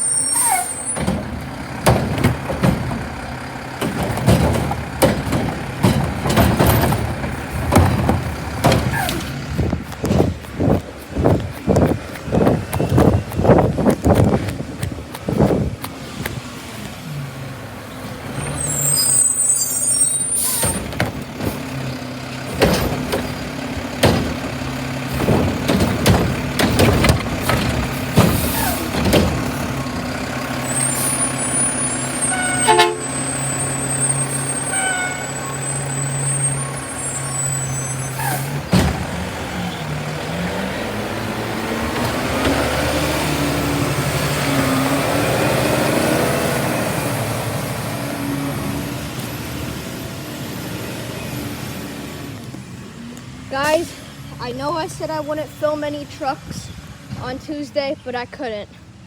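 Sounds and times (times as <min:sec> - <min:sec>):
garbage truck diesel engine: 0:00.0 - 0:59.0
sharp knocks and bangs: 0:01.0 - 0:16.4, 0:22.5 - 0:29.8.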